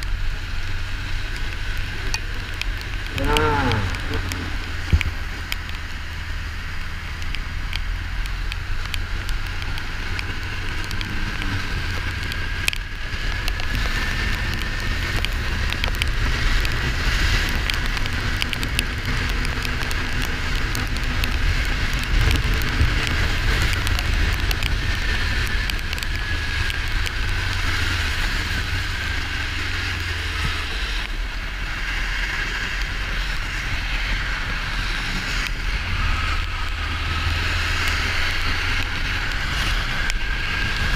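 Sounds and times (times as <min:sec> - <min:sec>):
motorcycle engine running: 0:00.0 - 0:40.9
small ticks: 0:01.3 - 0:31.2.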